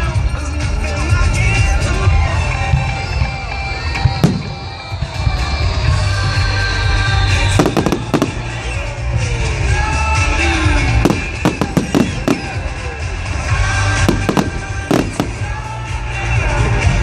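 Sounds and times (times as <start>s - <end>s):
music with heavy bass: 0.0s - 17.0s
firework shells bursting: 7.6s - 8.8s, 11.1s - 12.9s, 13.9s - 15.7s.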